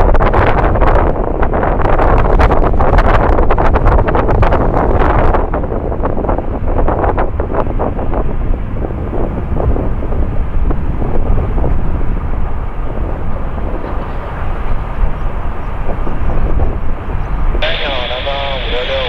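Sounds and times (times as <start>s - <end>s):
wind buffeting microphone: 0.0s - 19.0s
jet engines roaring: 5.2s - 19.0s.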